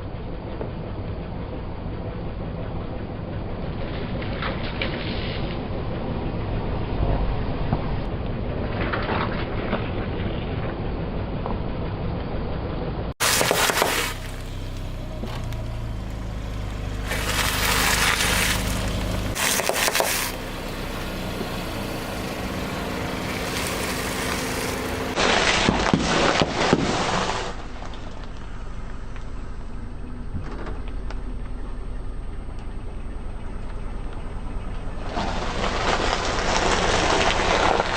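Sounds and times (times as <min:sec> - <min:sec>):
low car engine hum: 0:00.0 - 0:37.9
tyres crunching objects: 0:13.2 - 0:29.4, 0:34.7 - 0:37.9.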